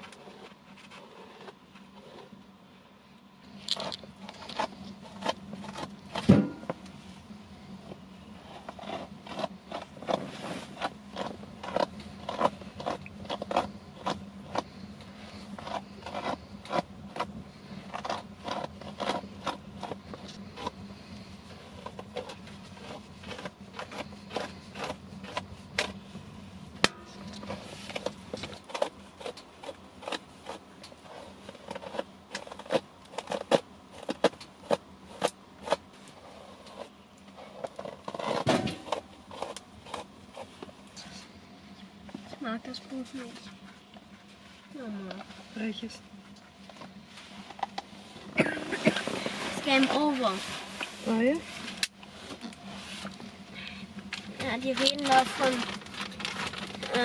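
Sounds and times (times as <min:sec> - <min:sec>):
faint low hum: 0:00.0 - 0:57.0
clicks taps and scrapes: 0:07.8 - 0:26.2.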